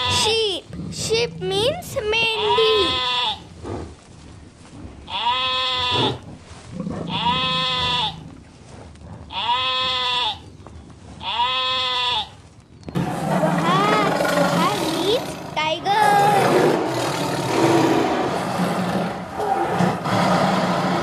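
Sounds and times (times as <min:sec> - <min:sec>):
sheep bleating: 0:00.0 - 0:00.4, 0:02.3 - 0:03.4, 0:05.1 - 0:06.2, 0:07.1 - 0:08.2, 0:09.3 - 0:10.4, 0:11.2 - 0:12.3.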